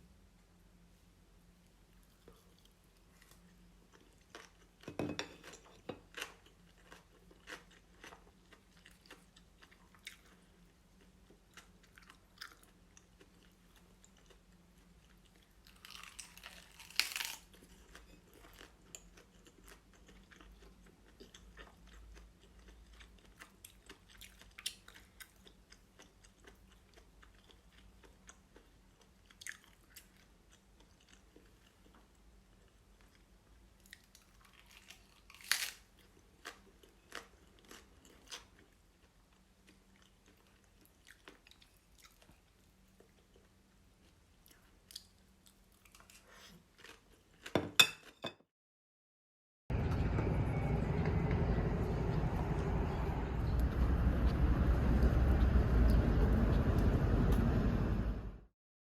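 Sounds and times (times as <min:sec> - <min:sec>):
soft chewing with crunches: 0:01.4 - 0:48.2.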